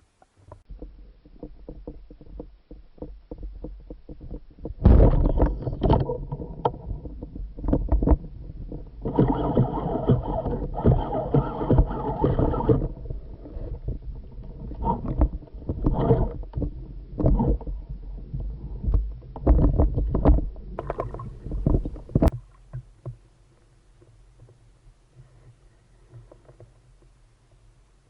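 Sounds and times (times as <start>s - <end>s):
seawater sloshing and splashing: 9.0s - 17.9s, 19.4s - 22.6s.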